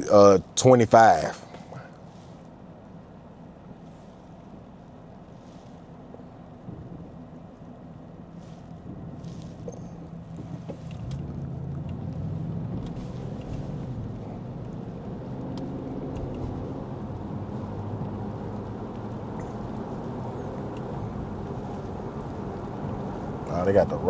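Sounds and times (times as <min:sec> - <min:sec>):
car engine and road hum: 0:00.0 - 0:24.0.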